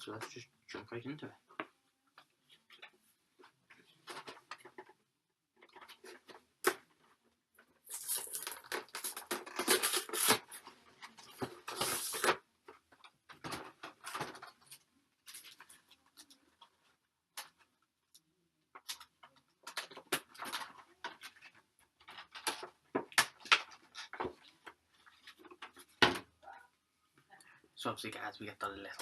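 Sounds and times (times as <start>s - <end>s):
plastic wrap crinkling and tearing: 7.8s - 12.4s.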